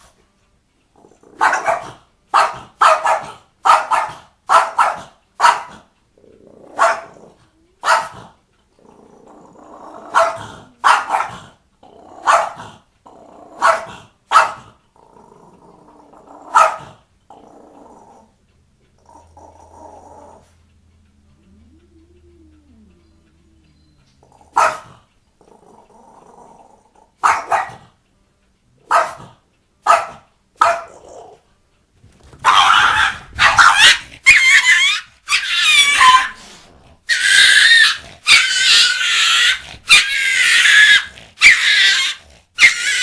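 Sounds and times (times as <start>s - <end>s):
dog growling: 0.9s - 2.1s, 5.7s - 28.0s, 30.7s - 31.6s, 32.3s - 43.0s
small dog barking: 1.3s - 5.8s, 6.7s - 7.2s, 7.8s - 8.3s, 10.1s - 11.5s, 12.2s - 12.8s, 13.6s - 14.8s, 16.4s - 17.0s, 24.2s - 25.0s, 27.2s - 28.0s, 28.8s - 31.0s, 32.4s - 36.4s, 37.1s - 43.0s.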